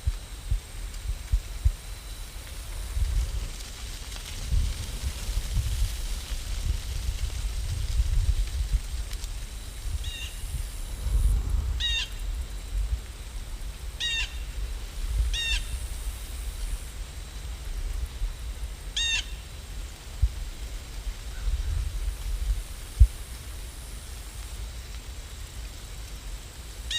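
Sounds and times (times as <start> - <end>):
low rumble: 0.0 - 18.8.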